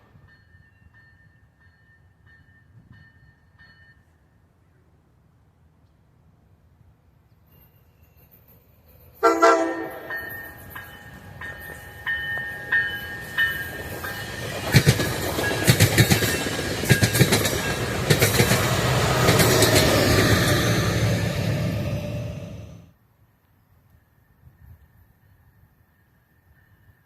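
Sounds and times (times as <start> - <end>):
train passing with rumble: 7.6 - 22.9
train horn: 9.2 - 10.3
bell dinging: 9.8 - 14.4
wheels clacking over rail joints: 9.8 - 22.1.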